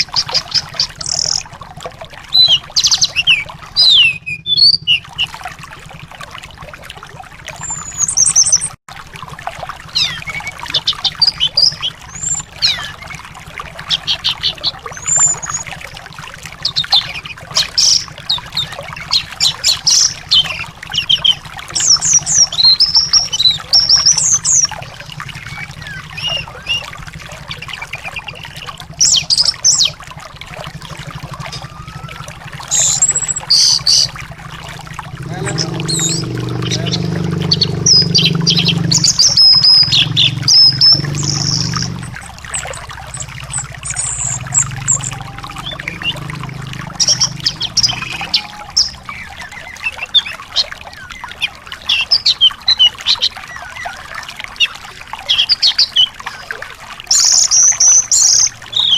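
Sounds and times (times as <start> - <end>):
songbird singing: 0.0 - 1.5, 2.2 - 5.4, 7.6 - 8.8, 9.9 - 56.5, 57.1 - 58.9
trickle of running water: 0.0 - 58.9.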